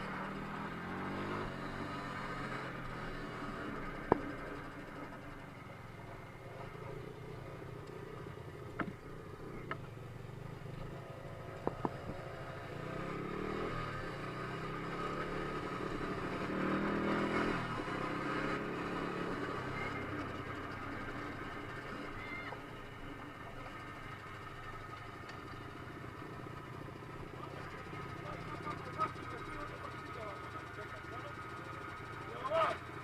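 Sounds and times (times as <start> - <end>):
dirt bike engine revving: 0.0 - 5.1, 11.8 - 22.5.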